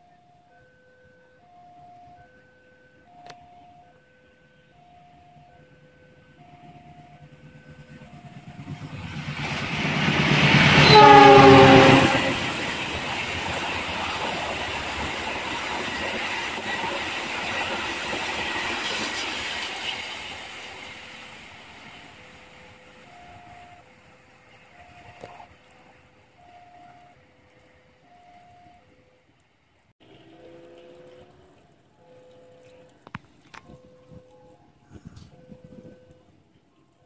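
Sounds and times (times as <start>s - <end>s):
diesel locomotive engine rumble: 3.8s - 29.3s, 30.1s - 37.0s
train horn: 10.4s - 12.9s
two-note warning tone: 10.8s - 12.5s.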